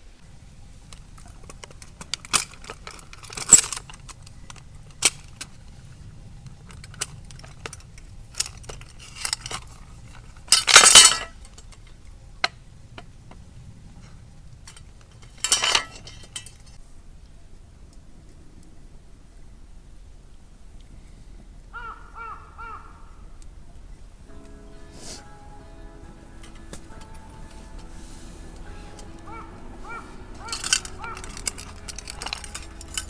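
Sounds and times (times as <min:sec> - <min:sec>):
metal camping gear clattering: 0:00.8 - 0:12.6, 0:14.6 - 0:16.8, 0:24.9 - 0:33.0.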